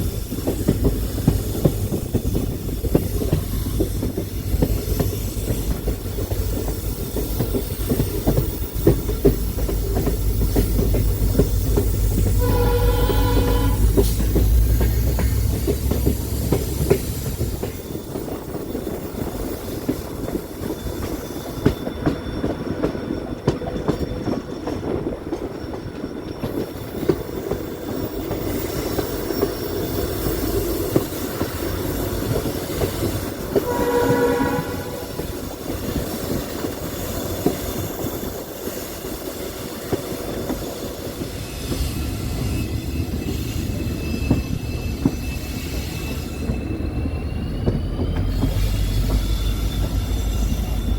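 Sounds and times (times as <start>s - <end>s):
train rattling on rails: 0.0s - 50.9s
train horn: 12.3s - 14.5s, 33.5s - 35.4s.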